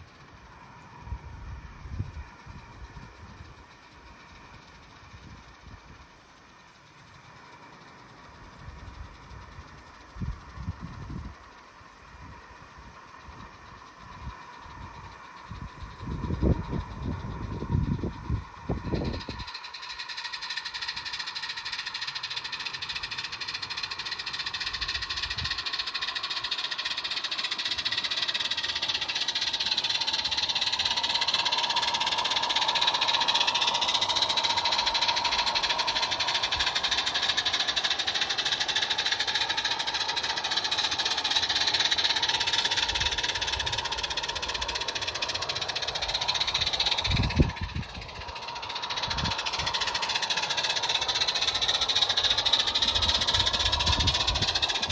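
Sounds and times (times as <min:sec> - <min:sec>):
model train whirring and rattling: 0:00.0 - 0:54.9.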